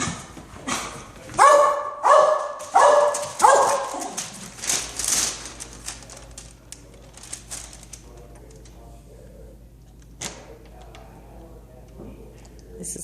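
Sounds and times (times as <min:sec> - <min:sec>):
dog barking: 0:01.4 - 0:04.2.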